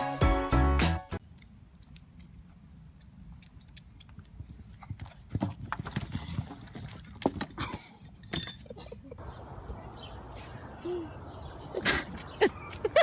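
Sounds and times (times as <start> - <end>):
horse hooves clip-clopping: 1.3 - 8.2.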